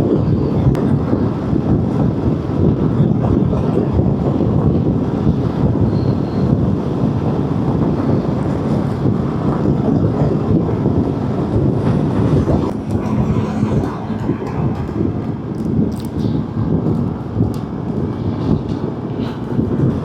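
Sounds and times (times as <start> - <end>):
wind buffeting microphone: 0.0 - 20.0
motorcycle engine: 11.5 - 16.7.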